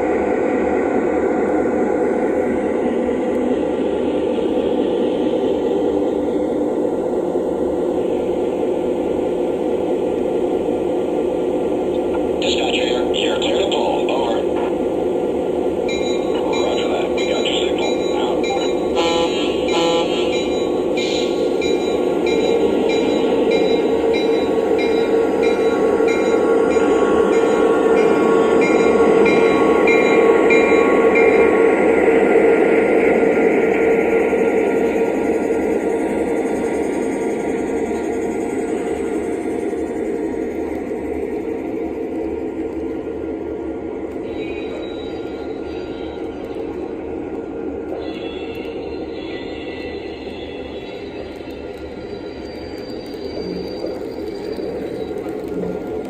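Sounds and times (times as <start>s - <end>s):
model locomotive engine sound: 0.0s - 56.0s
model train locomotive rumble: 12.0s - 15.2s, 15.8s - 31.9s.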